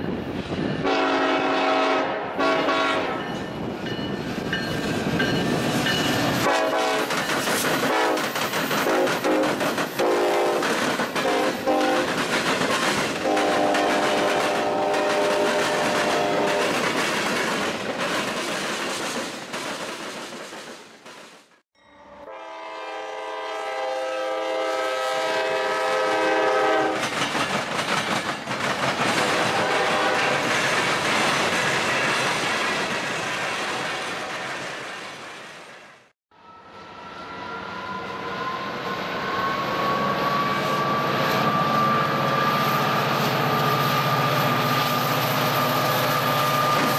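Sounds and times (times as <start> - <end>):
train horn: 0.8 - 3.4, 6.4 - 7.1, 7.8 - 12.2, 13.2 - 16.8, 22.0 - 27.0, 29.4 - 30.4
freight cars clattering over rails: 27.0 - 35.0.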